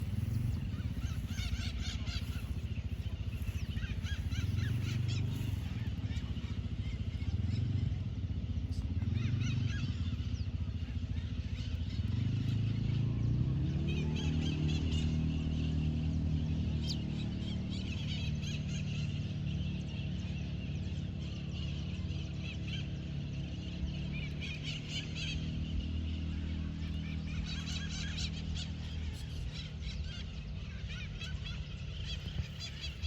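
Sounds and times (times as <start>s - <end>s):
bird chirping song: 0.0s - 33.0s
low engine-like rumble: 0.0s - 33.0s.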